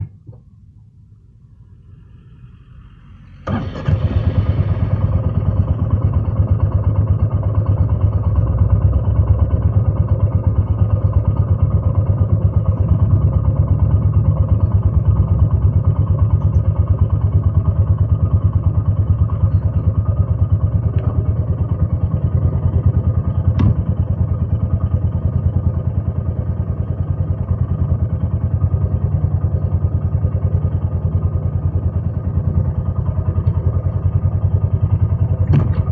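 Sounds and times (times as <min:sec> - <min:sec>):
motorcycle engine idling: 0:01.7 - 0:35.9
electric starter: 0:03.2 - 0:05.7.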